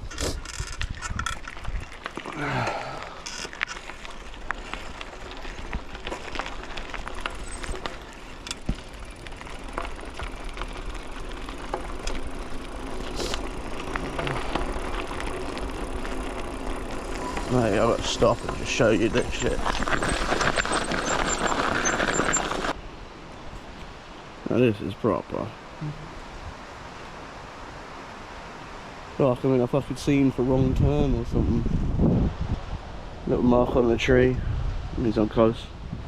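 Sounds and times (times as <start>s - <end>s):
bike clicks and rattles: 0.0s - 22.8s
bike tyres rolling on trail: 0.0s - 36.0s.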